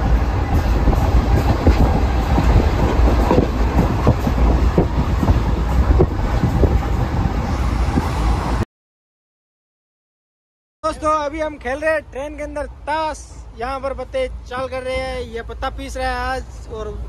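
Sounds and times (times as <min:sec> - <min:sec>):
train running gear rumble: 0:00.0 - 0:08.6.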